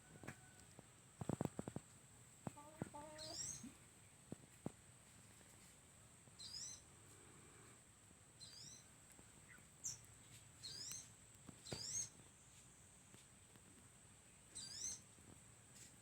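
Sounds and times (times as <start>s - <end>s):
bird giving short high chirps: 3.2s - 3.6s, 14.6s - 15.0s.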